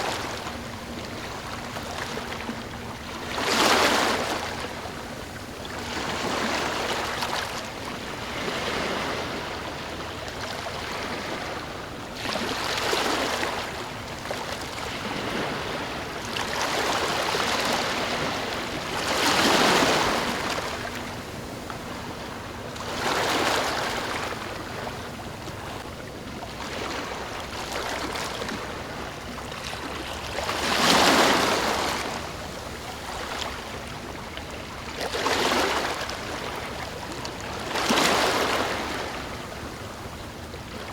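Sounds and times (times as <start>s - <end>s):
ocean waves breaking: 0.0s - 40.9s.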